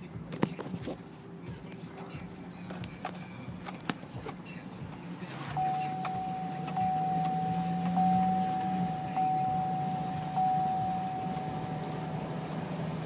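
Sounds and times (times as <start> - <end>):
low steady hum: 2.3 - 13.0
car warning chime dinging: 3.2 - 13.0.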